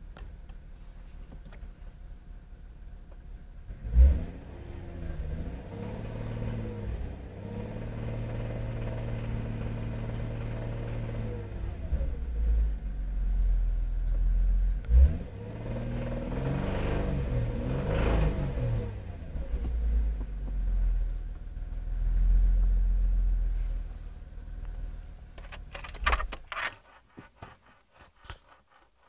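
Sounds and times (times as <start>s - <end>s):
car engine revving: 3.7s - 13.1s, 14.6s - 27.2s.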